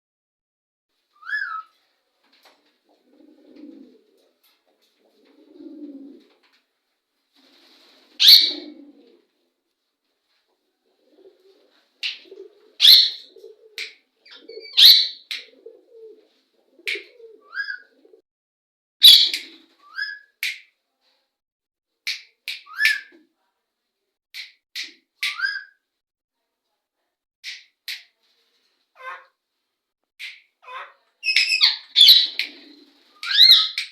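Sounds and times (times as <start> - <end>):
parrots calling: 12.8 - 13.3, 29.0 - 29.3, 30.6 - 32.4, 33.2 - 33.8.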